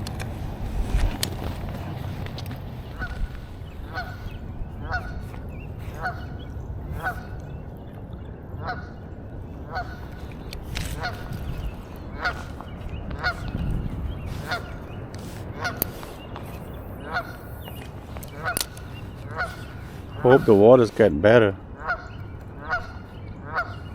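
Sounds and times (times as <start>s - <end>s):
geese honking: 1.8s - 7.4s, 8.6s - 9.0s, 9.6s - 13.6s, 14.2s - 16.4s, 17.0s - 23.9s.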